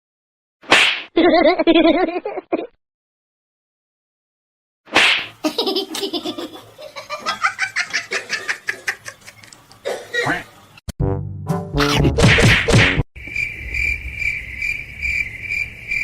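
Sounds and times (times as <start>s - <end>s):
person laughing: 1.2s - 2.7s, 5.4s - 9.5s.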